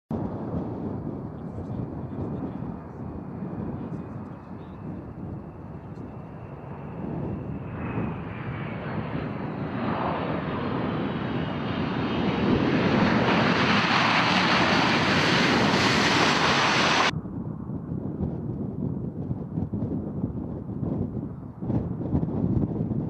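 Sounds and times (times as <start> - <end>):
wind noise: 0.1 - 23.0
jet engines at takeoff power: 0.2 - 17.2.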